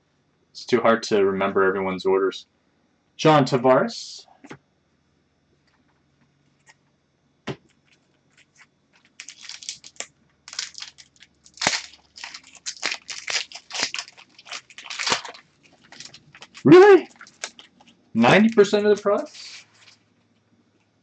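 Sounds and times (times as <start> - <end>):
wrapper crackling and crinkling: 7.8 - 18.7.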